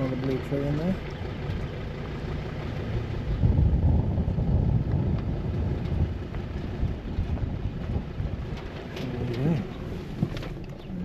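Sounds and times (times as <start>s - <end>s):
wind buffeting microphone: 2.8s - 11.0s.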